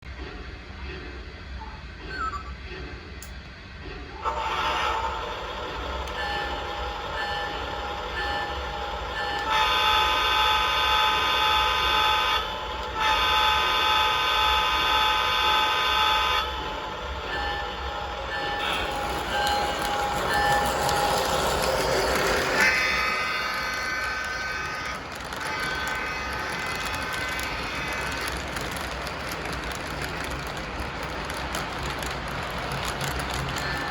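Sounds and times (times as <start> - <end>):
low hum of running train: 0.0 - 33.9
toy train horn blasts: 4.2 - 23.6
toy train electronic ding: 17.4 - 23.0.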